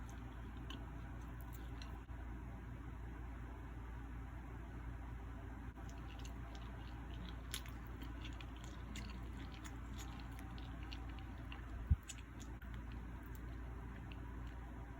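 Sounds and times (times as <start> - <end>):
chewing food: 0.0 - 2.1, 5.8 - 14.9
steady low hum: 0.0 - 14.9
crisp crackling mouth clicks: 5.8 - 14.7.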